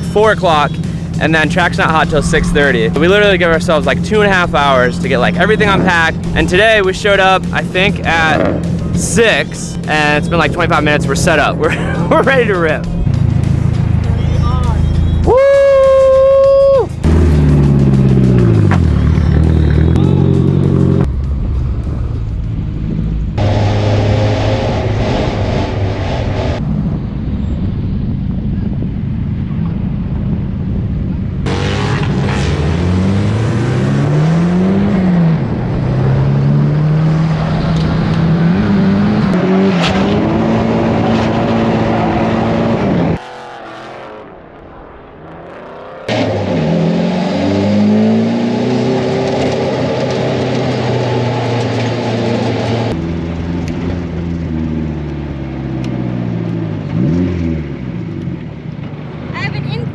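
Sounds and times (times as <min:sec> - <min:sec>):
car engines revving hard: 0:00.0 - 0:16.2, 0:16.9 - 0:21.1, 0:22.6 - 0:26.8, 0:31.4 - 0:59.9.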